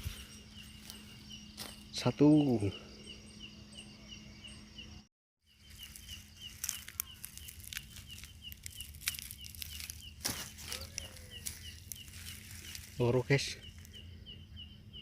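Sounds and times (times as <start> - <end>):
steady chirping: 0.0 - 15.0
rustles: 5.6 - 14.1
sharp crackles: 5.7 - 14.0.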